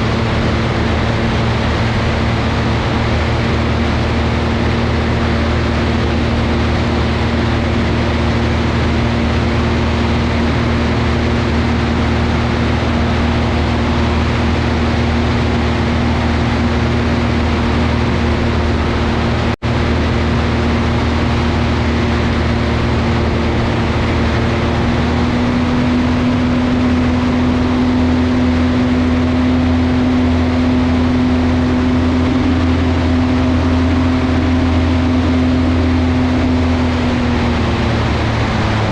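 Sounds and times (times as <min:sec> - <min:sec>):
piston engine droning: 0:00.0 - 0:38.9.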